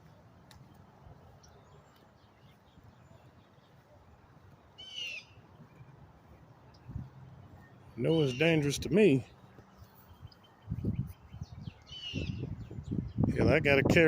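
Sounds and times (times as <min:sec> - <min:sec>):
bird calling: 0:04.8 - 0:05.9, 0:07.6 - 0:10.5, 0:11.2 - 0:12.6.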